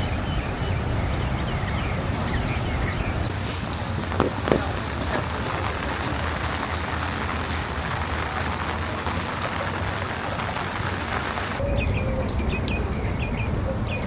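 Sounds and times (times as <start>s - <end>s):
rain splashing on hard surfaces: 3.3s - 11.6s
sharp taps of drops: 4.0s - 5.7s.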